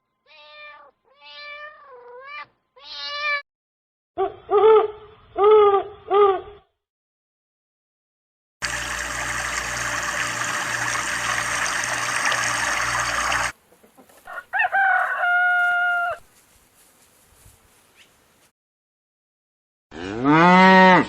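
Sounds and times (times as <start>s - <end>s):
rooster crowing: 14.2s - 16.3s.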